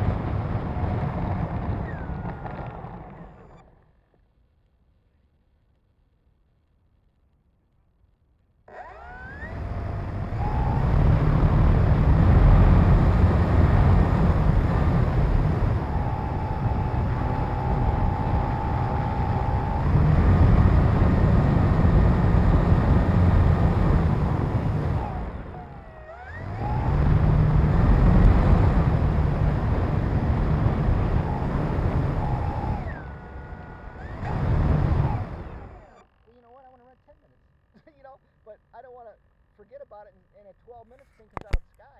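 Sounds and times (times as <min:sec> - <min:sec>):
model airplane motor and propeller: 0:00.0 - 0:04.3, 0:08.7 - 0:37.7.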